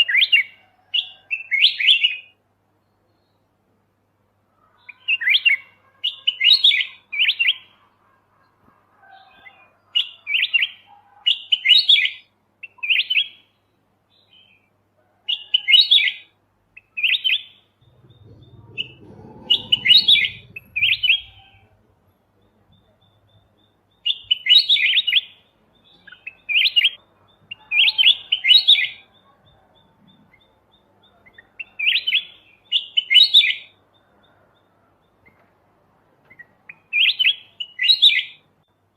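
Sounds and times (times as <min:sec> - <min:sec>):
bird singing chirpy phrases: 0:04.6 - 0:08.1, 0:10.0 - 0:14.8, 0:15.4 - 0:35.5, 0:36.2 - 0:38.9
faint low rumble: 0:17.8 - 0:23.5.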